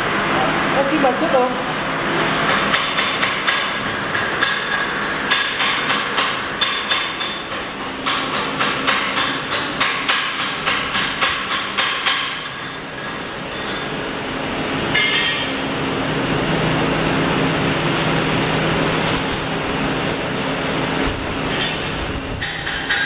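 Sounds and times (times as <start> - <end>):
hammer striking metal: 2.5 - 13.8, 14.9 - 15.6, 22.4 - 23.0.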